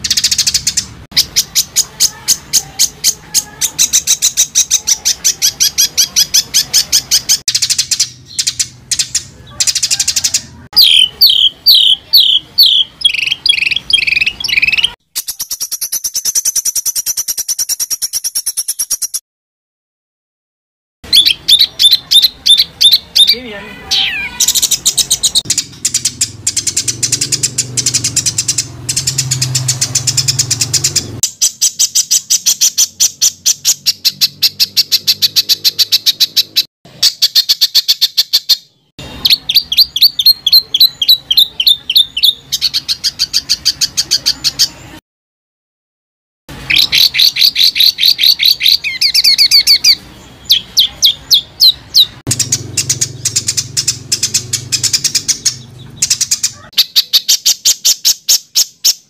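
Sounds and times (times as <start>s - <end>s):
songbird singing: 0.0s - 19.2s, 21.0s - 45.0s, 46.5s - 59.0s.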